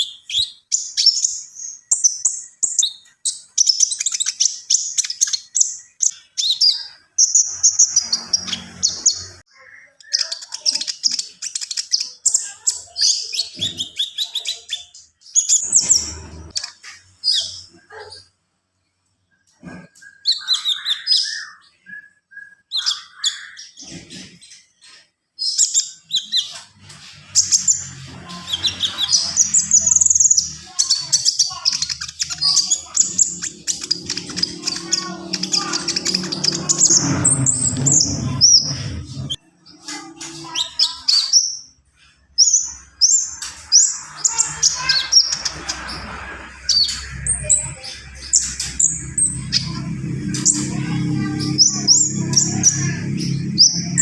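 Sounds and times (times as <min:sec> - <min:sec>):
songbird singing fast chattering phrases: 0:00.0 - 0:18.0, 0:27.3 - 0:39.4.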